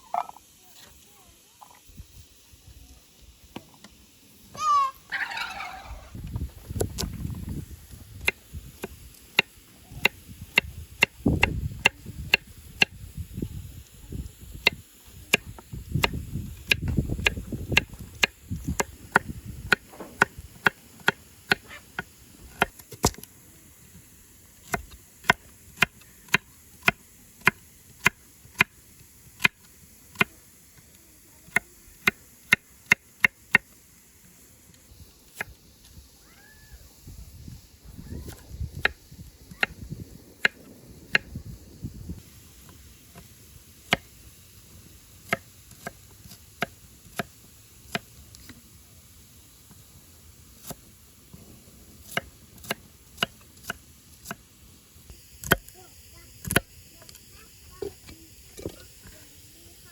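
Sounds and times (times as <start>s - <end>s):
low rumbling: 36.9s - 42.3s.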